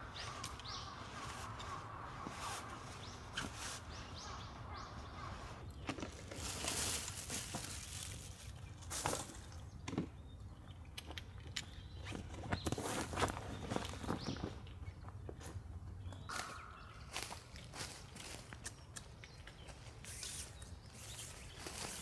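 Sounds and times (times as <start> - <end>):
bird chirps: 0.0 - 5.6, 16.1 - 17.4
rustling on dry ground: 0.0 - 9.8, 12.0 - 14.6, 16.3 - 22.0.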